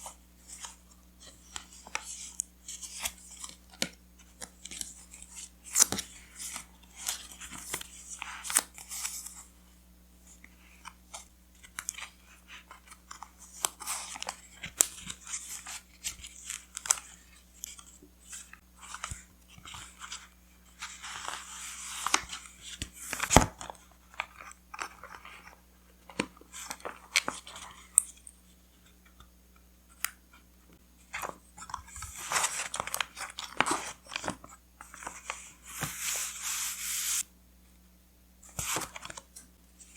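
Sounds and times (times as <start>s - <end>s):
paper crinkling: 31.0s - 37.2s.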